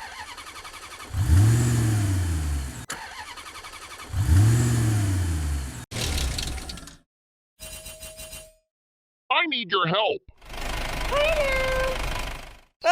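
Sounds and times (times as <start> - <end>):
engine ticking and revving: 0.0 - 6.8, 10.4 - 12.7.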